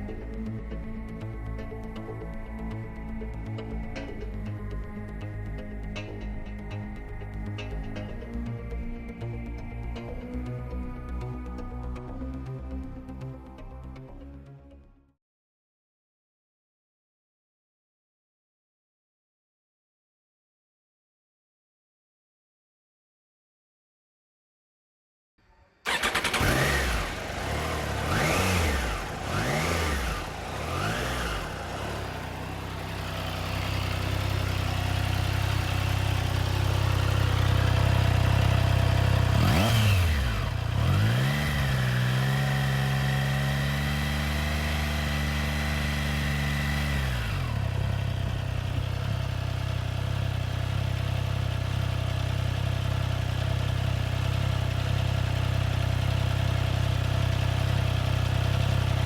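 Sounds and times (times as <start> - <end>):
motorcycle engine revving and idling: 25.8 - 59.0.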